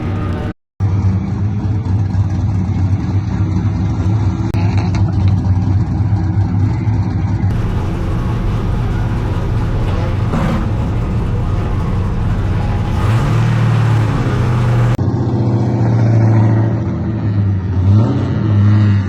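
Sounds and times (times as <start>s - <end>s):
car engine rumbling: 0.0s - 0.6s, 7.5s - 15.0s.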